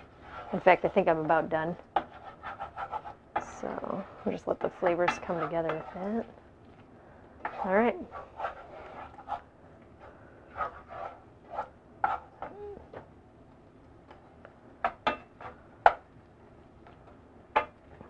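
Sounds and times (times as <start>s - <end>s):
wooden spoon stirring in a pan: 0.0s - 12.4s, 14.2s - 16.1s.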